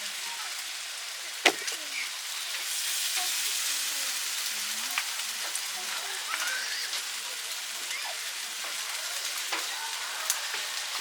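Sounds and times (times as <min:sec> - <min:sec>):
fish sizzling on a grill: 0:00.0 - 0:11.0
sharp pops and crackles: 0:01.4 - 0:02.7.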